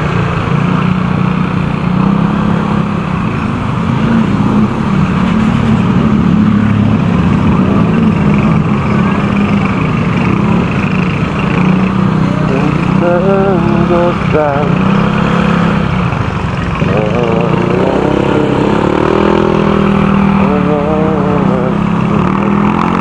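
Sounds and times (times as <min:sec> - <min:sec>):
motorcycle engine running: 0:00.0 - 0:23.0
wind and road noise: 0:00.0 - 0:23.0.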